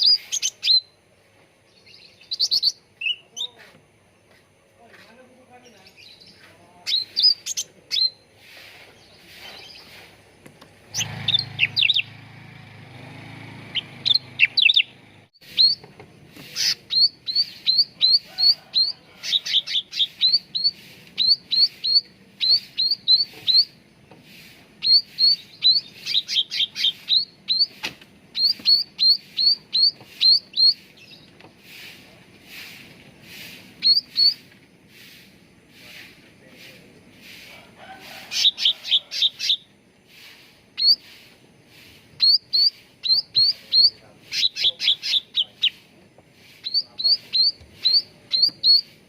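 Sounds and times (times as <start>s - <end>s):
songbird chirping rapidly: 0.0s - 37.4s, 38.2s - 49.0s.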